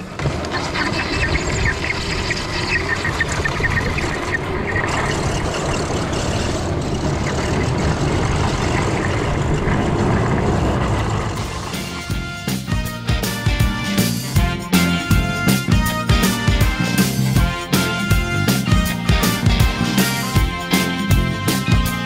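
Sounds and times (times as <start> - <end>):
rush of wind: 0.0 - 12.2
snowmobile riding over snow: 0.0 - 22.0.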